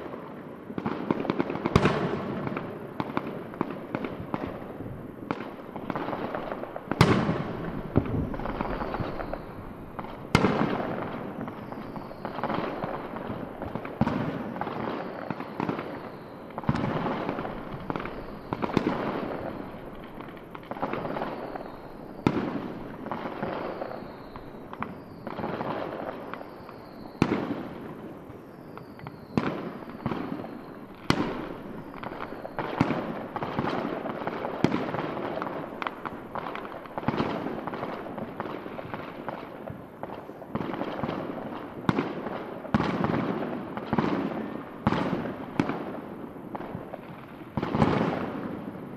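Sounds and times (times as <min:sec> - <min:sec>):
fireworks crackling: 0:00.0 - 0:48.9
falling whistles: 0:08.2 - 0:13.5, 0:14.7 - 0:16.8, 0:17.6 - 0:19.9, 0:20.9 - 0:27.6, 0:28.4 - 0:33.0.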